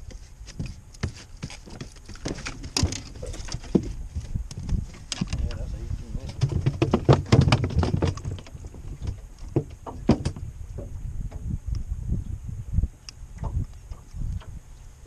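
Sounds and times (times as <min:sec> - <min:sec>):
knocks and clatter in a boat: 0:00.0 - 0:11.7, 0:13.3 - 0:14.6
low steady rumble: 0:08.2 - 0:15.0.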